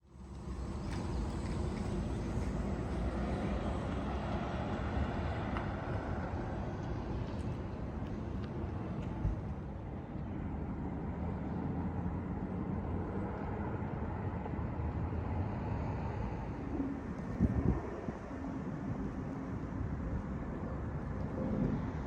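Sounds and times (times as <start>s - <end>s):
city traffic rumble: 0.1s - 22.0s.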